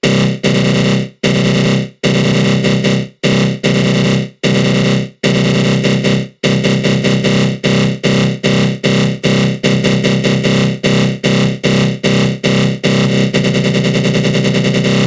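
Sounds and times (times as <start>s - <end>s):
harsh buzzy synth growl: 13.0s - 15.0s.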